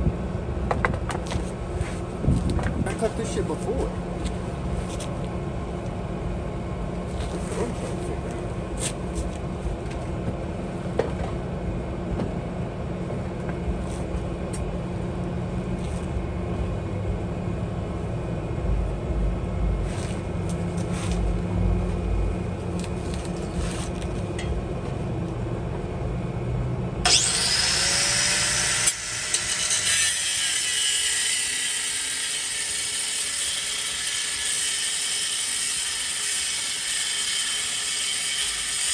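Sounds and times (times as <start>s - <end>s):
sawing and scraping metal pipe: 7.1s - 9.4s, 27.1s - 38.9s
low rumble: 15.7s - 27.1s
power tool cutting with hiss: 27.1s - 38.9s.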